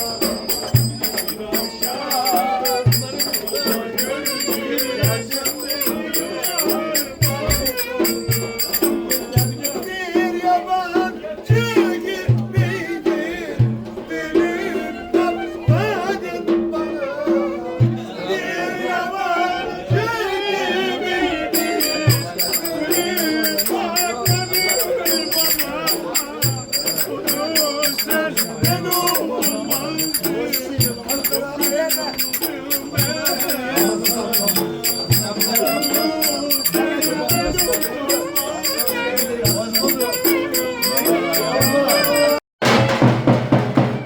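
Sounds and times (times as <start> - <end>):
wavering folk melody: 0.0 - 10.0, 21.6 - 42.4
fast hand percussion: 0.0 - 10.2, 21.5 - 42.4.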